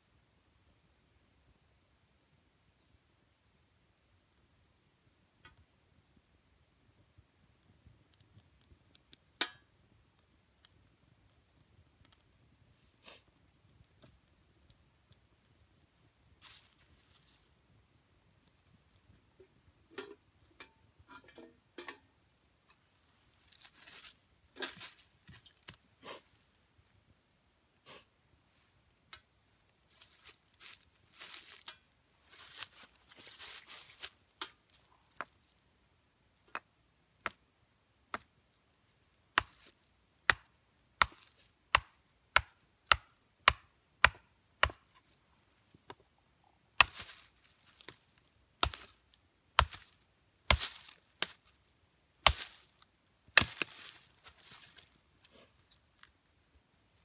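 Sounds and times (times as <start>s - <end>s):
firewood being chopped: 9.4s - 9.7s, 38.1s - 38.3s, 39.3s - 45.1s, 46.8s - 48.0s, 48.6s - 49.0s, 49.6s - 51.5s, 52.2s - 52.7s, 53.3s - 54.8s
twigs rustling: 16.4s - 17.7s, 22.7s - 25.9s, 29.6s - 35.7s, 39.3s - 43.1s, 46.8s - 56.2s
twigs snapping: 29.9s - 35.4s, 39.4s - 45.2s, 46.8s - 48.0s, 48.6s - 49.0s, 49.6s - 51.5s, 52.2s - 55.0s.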